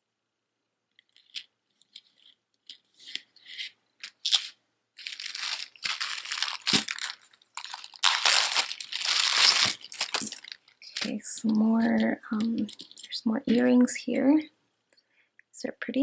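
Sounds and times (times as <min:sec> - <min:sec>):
plastic bag crinkling: 0:01.1 - 0:13.7.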